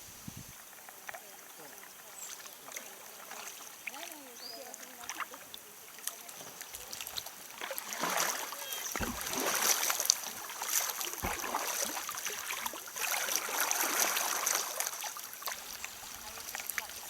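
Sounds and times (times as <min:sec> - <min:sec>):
paddle splashing water: 0:00.0 - 0:17.0
low knocks: 0:09.0 - 0:09.5.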